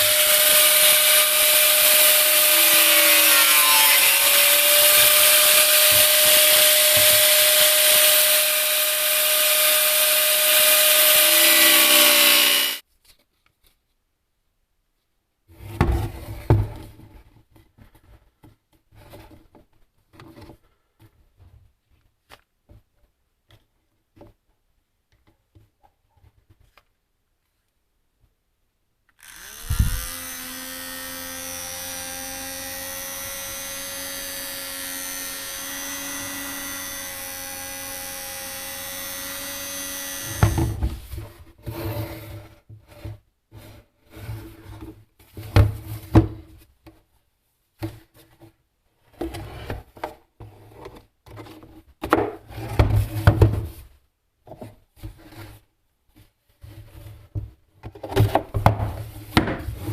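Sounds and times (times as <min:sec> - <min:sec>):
power tool whining: 0:00.0 - 0:12.8, 0:29.2 - 0:41.0.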